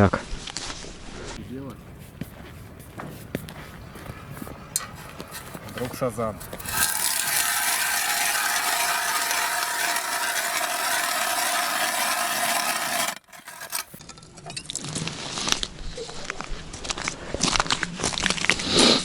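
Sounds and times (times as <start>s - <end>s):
ice auger scraping crunch: 4.8s - 14.0s
ice knocks and scrapes: 5.2s - 14.0s.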